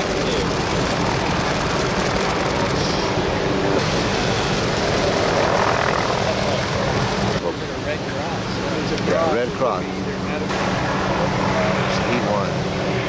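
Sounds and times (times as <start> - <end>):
ocean noise: 0.0 - 8.9
engine drone: 0.0 - 13.0
wind: 0.0 - 13.0.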